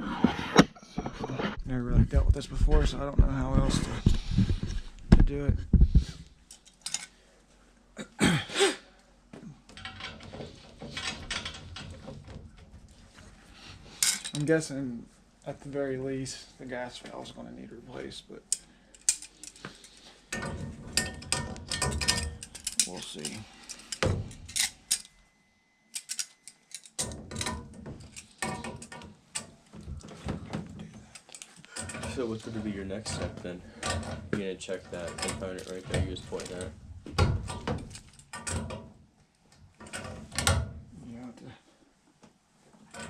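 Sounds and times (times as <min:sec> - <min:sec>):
clicks and knocks of tools handled: 0:06.5 - 0:07.2, 0:18.5 - 0:25.2, 0:25.9 - 0:32.2, 0:34.9 - 0:38.9
hand tools clattering on metal: 0:20.3 - 0:25.1.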